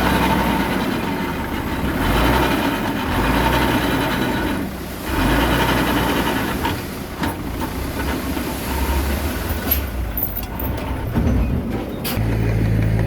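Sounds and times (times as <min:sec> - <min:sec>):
bulldozer diesel engine: 0:00.0 - 0:13.0
metallic clanks of tracks: 0:06.6 - 0:13.0.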